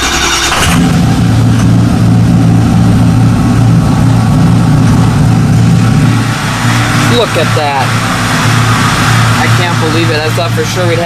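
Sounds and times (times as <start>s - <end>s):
starter cranking: 0.0s - 1.8s
diesel engine loud idle: 0.0s - 11.0s.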